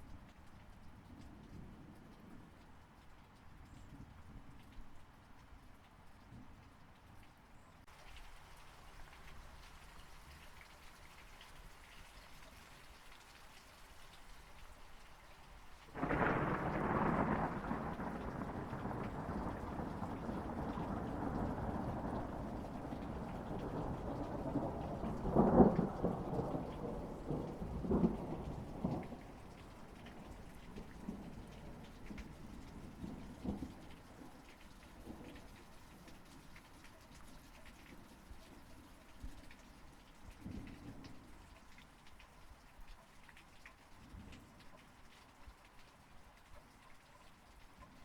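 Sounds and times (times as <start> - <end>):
steady rain falling: 0.0 - 48.0
sharp thunder cracks: 16.0 - 29.5
thunder rolling: 16.0 - 32.4.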